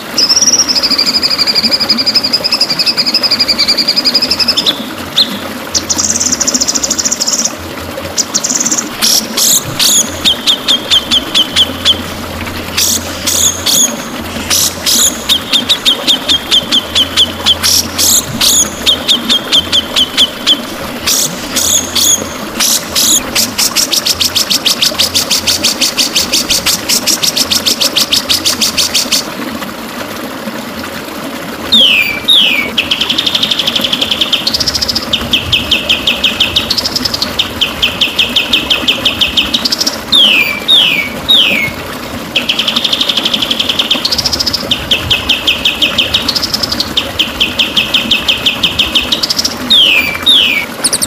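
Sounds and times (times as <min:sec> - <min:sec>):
bird singing: 0:31.7 - 0:33.1, 0:34.3 - 0:41.7, 0:45.1 - 0:51.0.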